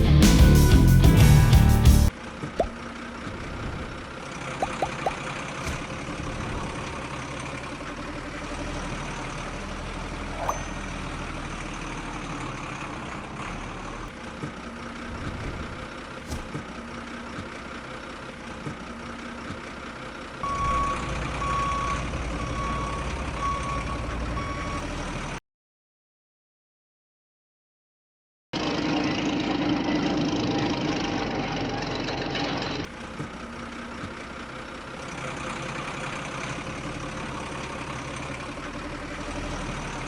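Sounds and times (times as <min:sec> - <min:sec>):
miniature truck mechanical hum: 0:00.6 - 0:25.4, 0:28.6 - 0:40.0
reversing beeper: 0:20.4 - 0:24.9.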